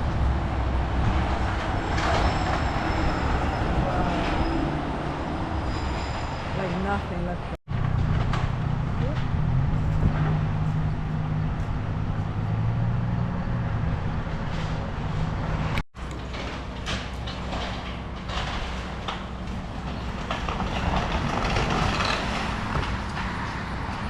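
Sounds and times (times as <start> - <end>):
wood cracking and crunching: 16.0 - 23.4.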